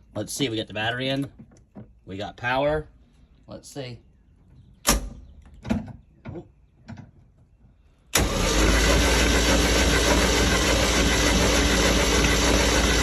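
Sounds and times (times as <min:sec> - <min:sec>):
boat engine starting and running: 0:08.1 - 0:13.0.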